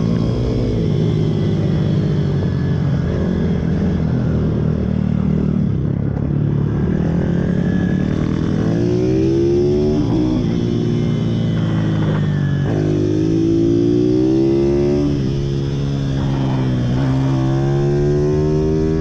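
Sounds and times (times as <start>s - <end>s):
pit bike engines revving: 6.2s - 19.0s.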